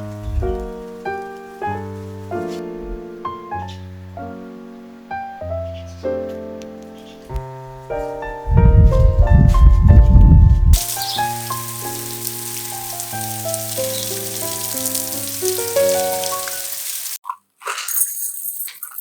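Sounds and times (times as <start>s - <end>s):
loud low rumbling noise: 0.0s - 0.7s, 8.4s - 10.8s
solo piano music: 0.0s - 17.2s.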